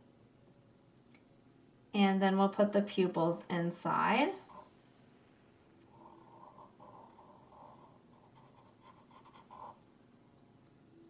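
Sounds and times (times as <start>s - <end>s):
pen scratching on paper: 5.9s - 9.8s.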